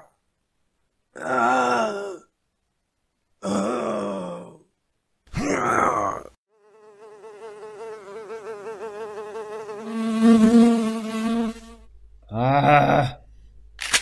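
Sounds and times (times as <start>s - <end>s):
vocal grunt: 1.2s - 2.3s, 3.4s - 4.7s, 5.3s - 6.4s, 12.3s - 13.3s
fly buzzing: 6.5s - 11.9s.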